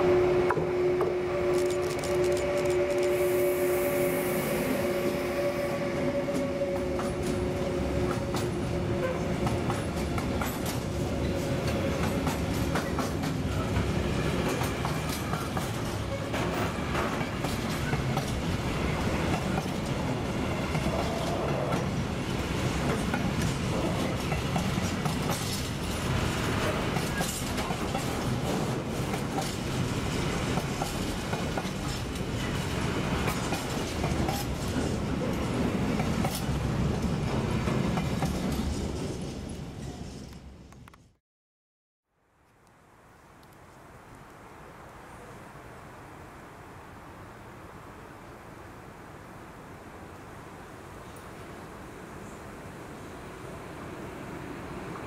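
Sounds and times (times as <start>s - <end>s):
wheels clattering over rails: 22.7s - 36.5s.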